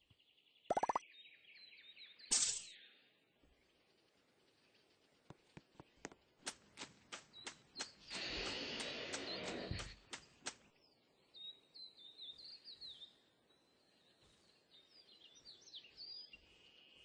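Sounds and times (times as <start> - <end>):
small bird chirping: 0.0 - 3.0.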